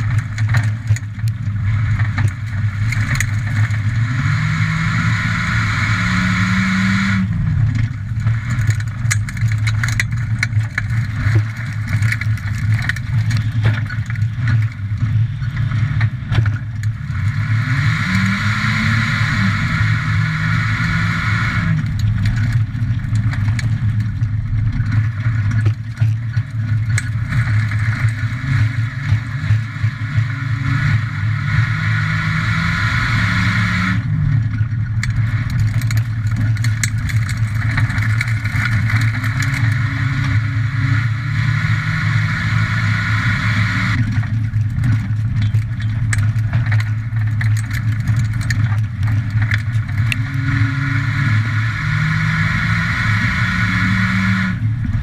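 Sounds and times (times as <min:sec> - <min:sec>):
car engine running at racing speed: 0:00.0 - 0:55.0.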